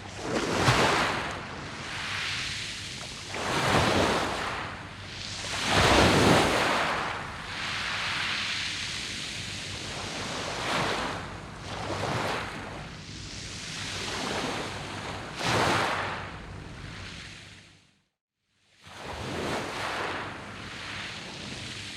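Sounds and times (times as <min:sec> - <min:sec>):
waves breaking on pebble beach: 0:00.1 - 0:11.2, 0:11.8 - 0:12.6, 0:13.9 - 0:16.1.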